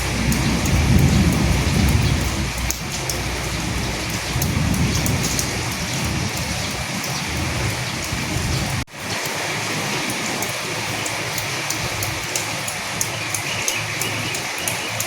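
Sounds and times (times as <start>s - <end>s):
low rumble: 0.0s - 8.9s
heavy rain: 0.0s - 15.0s.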